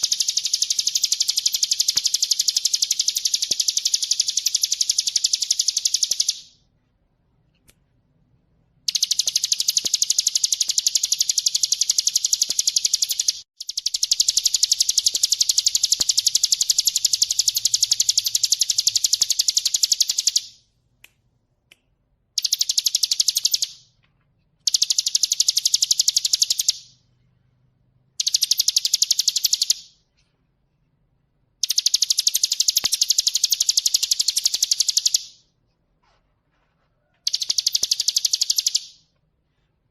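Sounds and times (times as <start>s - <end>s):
bird singing rattling trills: 0.0s - 6.5s, 37.2s - 39.0s.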